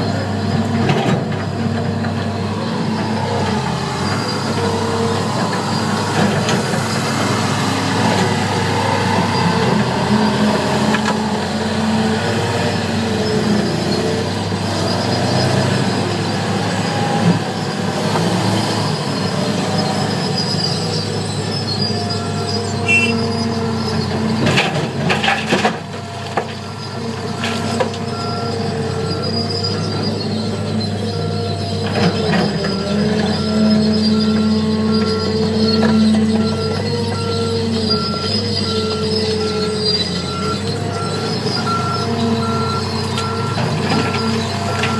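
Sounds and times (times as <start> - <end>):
heavy diesel machinery running: 0.0 - 44.9
pitched whines: 2.4 - 17.7, 18.6 - 24.2.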